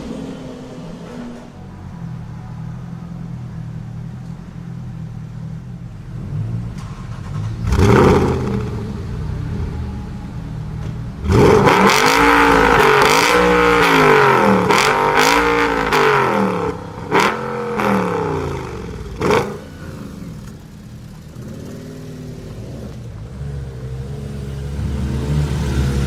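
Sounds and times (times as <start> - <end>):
car engine revving: 0.0 - 26.0
exhaust cracks: 6.0 - 23.4.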